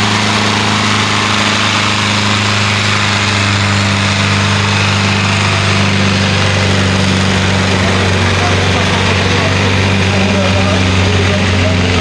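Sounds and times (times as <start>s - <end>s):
tractor engine at high revs: 0.0s - 12.0s.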